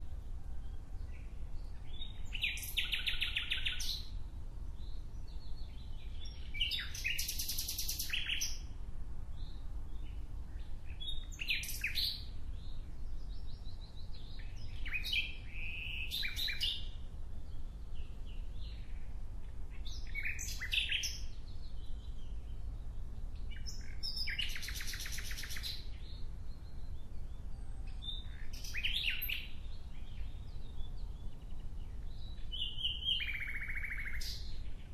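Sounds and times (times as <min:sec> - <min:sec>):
songbird trilling: 0:01.9 - 0:04.1, 0:05.5 - 0:08.6, 0:14.1 - 0:16.9, 0:19.7 - 0:21.3, 0:23.5 - 0:34.7.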